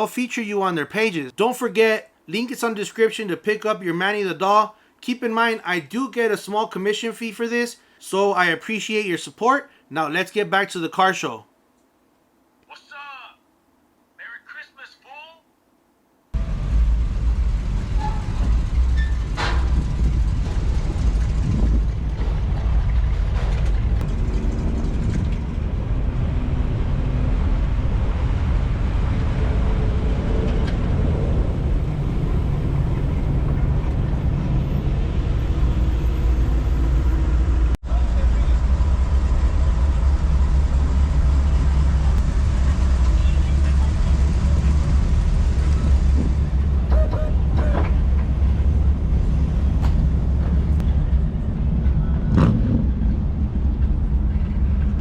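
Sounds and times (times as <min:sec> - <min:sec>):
motor vehicles rumbling: 0:16.4 - 0:55.0.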